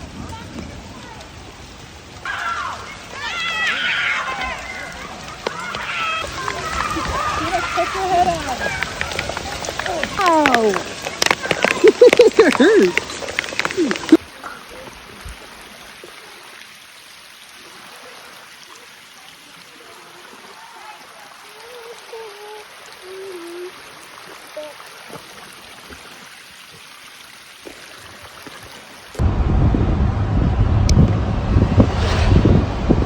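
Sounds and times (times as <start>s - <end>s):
rushing water hiss: 0.0s - 29.3s.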